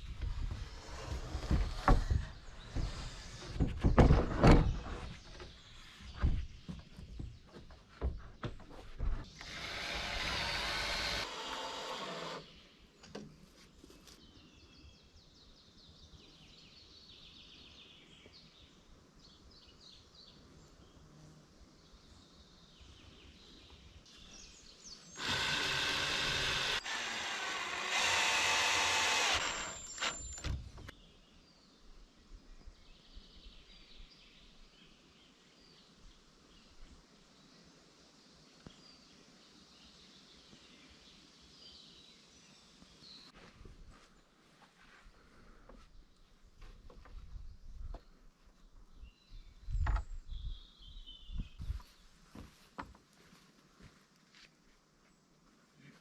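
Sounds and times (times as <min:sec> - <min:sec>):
faint birdsong: 0:00.0 - 0:56.0
electric drill running: 0:09.4 - 0:12.4, 0:25.2 - 0:30.6.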